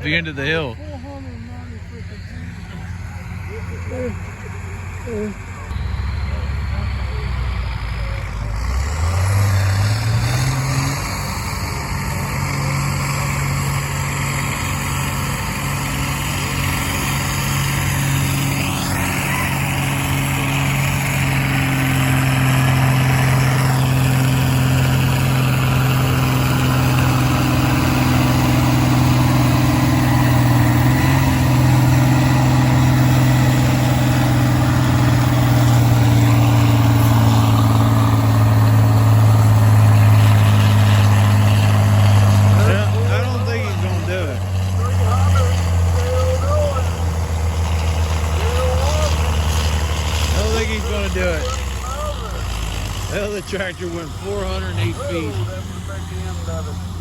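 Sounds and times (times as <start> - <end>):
tractor engine revving: 0.0 - 57.0.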